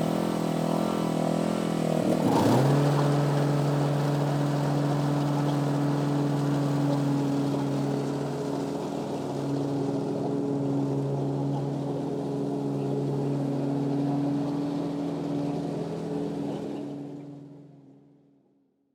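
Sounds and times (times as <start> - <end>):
lawn mower engine running: 0.0 - 17.6.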